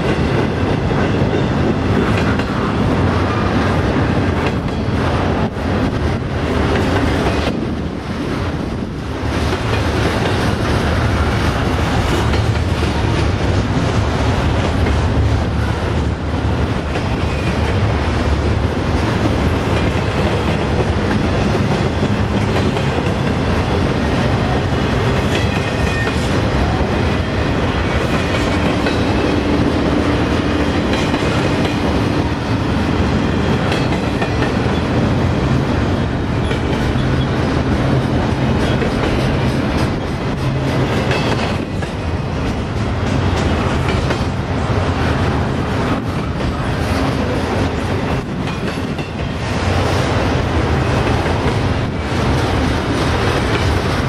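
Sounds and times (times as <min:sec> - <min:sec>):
steel wheels rumbling on rail: 0:00.0 - 0:54.0
wheels clicking over rail joints: 0:08.7 - 0:15.3, 0:36.0 - 0:44.4, 0:45.8 - 0:54.0.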